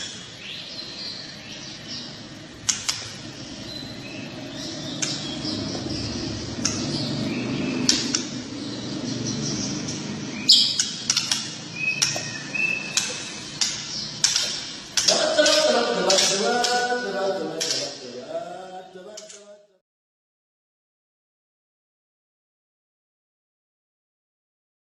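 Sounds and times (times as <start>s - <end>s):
songbirds calling and whistling: 0.0s - 18.1s
man chanting: 15.0s - 19.8s.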